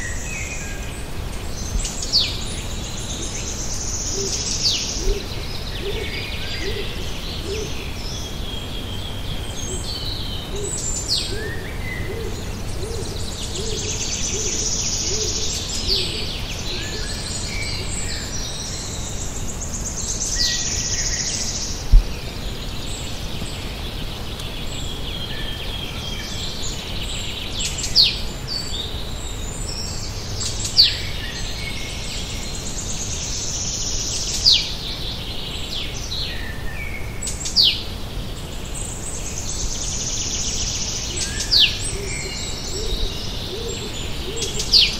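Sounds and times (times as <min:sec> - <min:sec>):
songbirds singing: 0:00.0 - 0:44.9
bird low hooting: 0:03.0 - 0:08.0, 0:10.5 - 0:18.4, 0:41.4 - 0:44.9.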